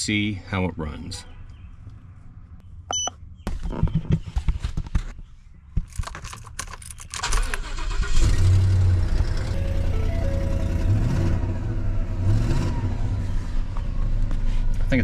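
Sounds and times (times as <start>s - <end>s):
keys rattling at ignition: 5.8s - 8.2s
truck engine cranking and idling: 5.9s - 14.4s.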